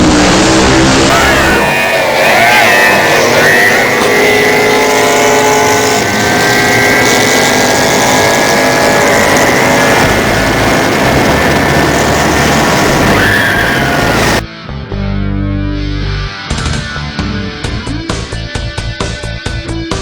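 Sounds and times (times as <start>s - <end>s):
boat engine revving hard: 0.0s - 14.4s.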